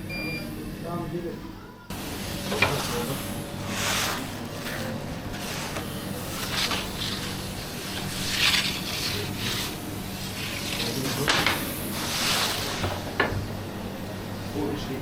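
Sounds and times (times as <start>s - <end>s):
low machine hum: 0.0s - 15.0s
rubbing and scraping swishes: 2.8s - 13.1s.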